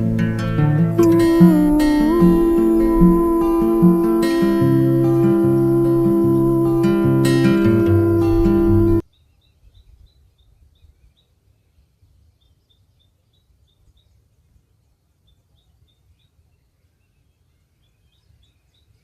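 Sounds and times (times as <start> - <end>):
acoustic guitar music: 0.0 - 9.0.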